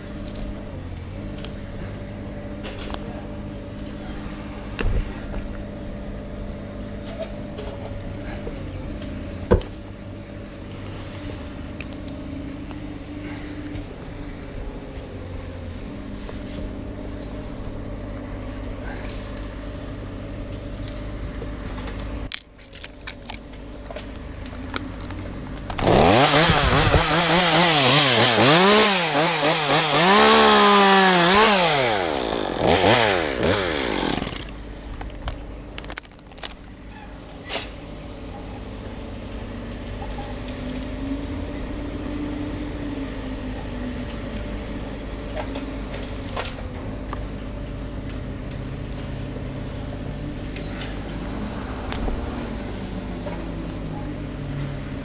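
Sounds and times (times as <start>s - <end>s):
low motor hum: 0.0s - 55.0s
chainsaw cutting wood: 25.6s - 35.3s.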